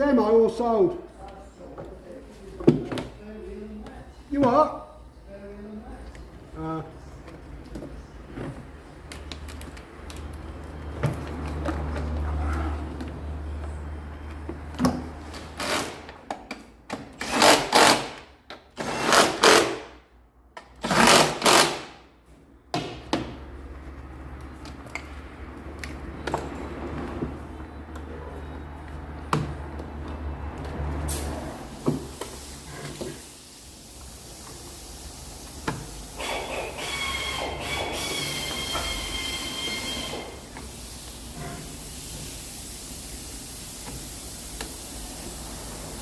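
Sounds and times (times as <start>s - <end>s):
pneumatic tool bursts: 15.6s - 16.0s, 17.2s - 18.2s, 36.1s - 42.3s.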